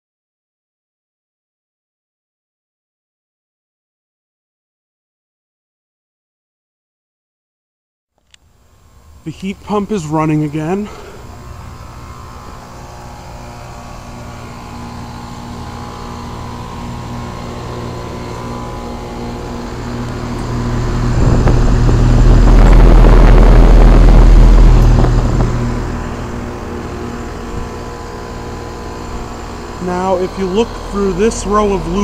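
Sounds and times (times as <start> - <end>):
heat pump humming: 8.2 - 32.0
loud low rushing: 18.0 - 32.0.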